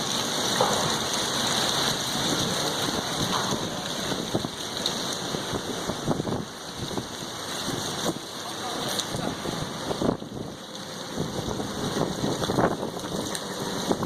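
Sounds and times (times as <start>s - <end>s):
wind gusts buffeting microphone: 2.0s - 8.3s, 9.0s - 14.0s
sandstorm wind rushing: 5.3s - 8.2s.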